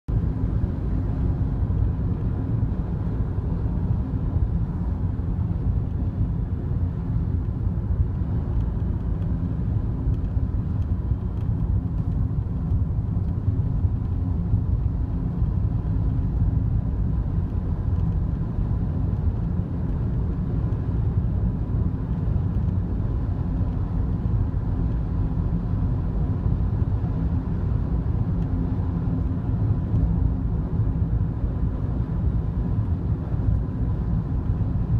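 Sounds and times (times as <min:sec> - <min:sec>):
road and engine rumble: 0:00.0 - 0:34.9
faint light ticks: 0:07.4 - 0:09.4, 0:10.1 - 0:14.2, 0:17.4 - 0:18.4, 0:22.4 - 0:22.8, 0:24.8 - 0:25.0.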